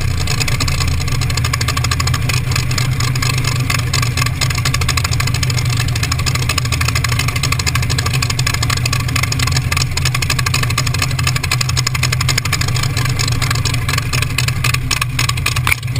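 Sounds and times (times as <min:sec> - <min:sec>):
hot rod engine running loudly: 0:00.0 - 0:15.9.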